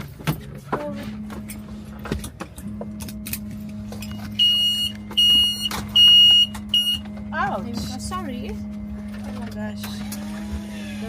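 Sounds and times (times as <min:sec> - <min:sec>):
steady low hum: 0:00.0 - 0:11.0
electronic warning beeps: 0:03.9 - 0:08.7.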